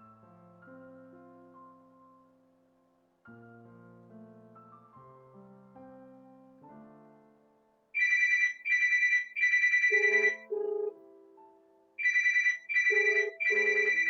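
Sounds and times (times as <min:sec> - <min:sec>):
soft piano music: 0:00.0 - 0:08.6, 0:09.9 - 0:14.0
phone ringtone trilling: 0:08.0 - 0:11.0, 0:12.0 - 0:14.0.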